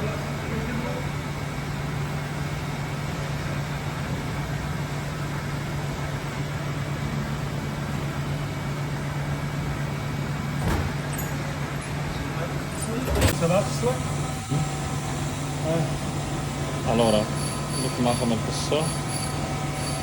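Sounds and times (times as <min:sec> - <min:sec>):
milling machine humming: 0:13.3 - 0:20.0.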